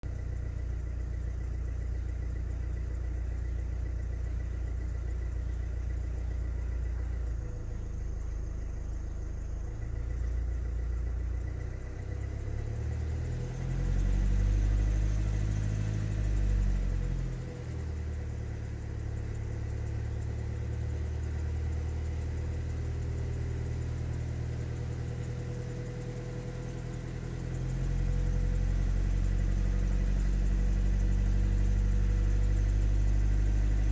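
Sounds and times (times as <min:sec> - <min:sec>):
diesel engine running and revving: 0:00.0 - 0:33.9
engine ticking noise: 0:00.0 - 0:33.9.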